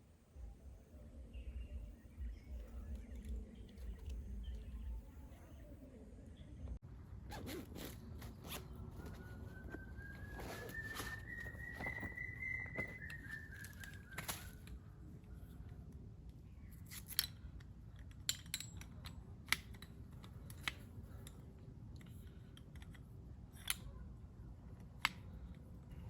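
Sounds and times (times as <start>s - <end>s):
bird whistle: 9.0s - 14.6s.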